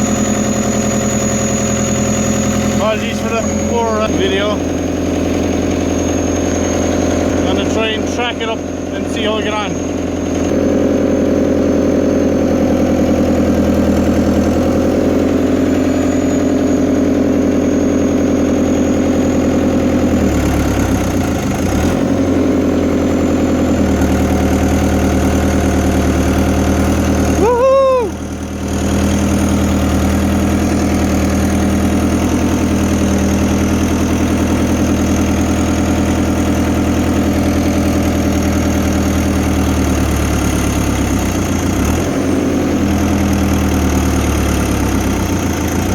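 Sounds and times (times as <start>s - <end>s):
loud whine: 0.0s - 20.2s
excavator diesel engine running: 0.0s - 45.9s.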